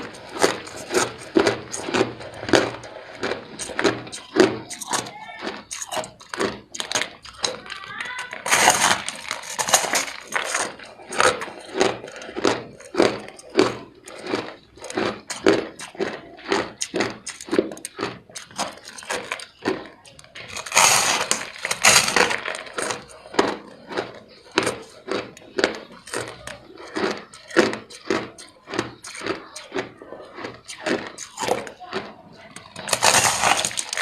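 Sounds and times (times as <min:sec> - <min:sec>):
ice crunched between teeth: 0:00.0 - 0:34.0.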